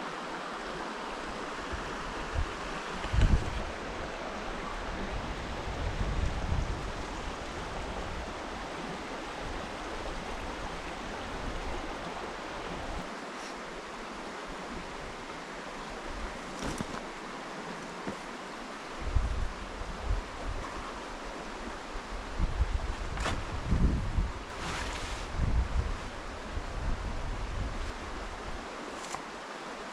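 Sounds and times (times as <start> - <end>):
river flowing: 0.0 - 29.9
wind buffeting microphone: 1.6 - 13.1, 22.1 - 28.6.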